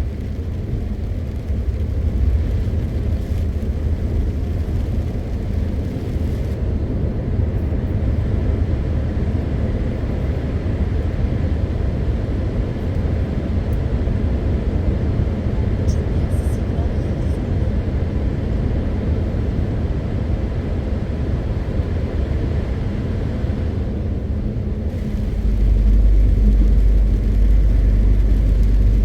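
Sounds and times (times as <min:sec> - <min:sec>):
road noise: 0:00.0 - 0:07.3, 0:22.0 - 0:29.0
truck engine droning: 0:24.5 - 0:29.0.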